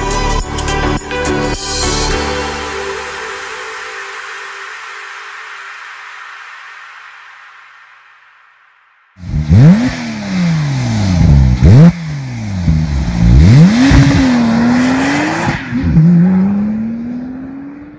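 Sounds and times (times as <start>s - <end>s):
sports car engine revving: 9.2s - 17.9s.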